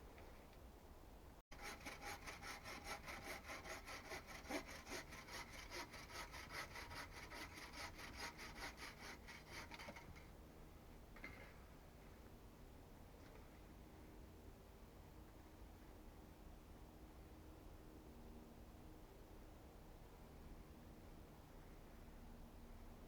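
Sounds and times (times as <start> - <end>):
hand saw cutting wood: 1.5 - 10.2.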